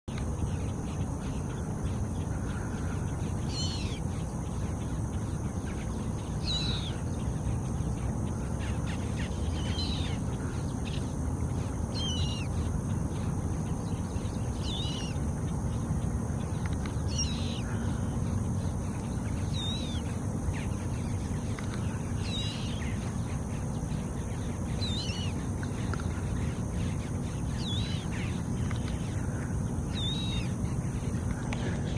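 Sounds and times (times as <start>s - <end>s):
steady low rumble: 0.1s - 31.9s.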